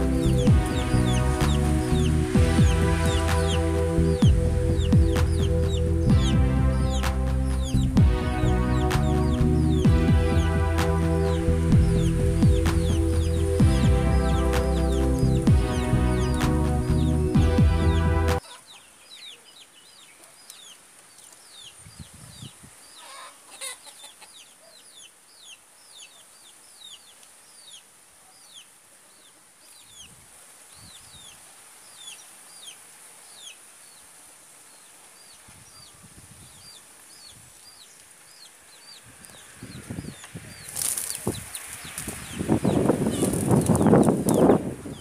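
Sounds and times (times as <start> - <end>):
small bird chirping: 0.0 - 17.2, 34.7 - 45.0
loud rushing noise: 0.0 - 18.4.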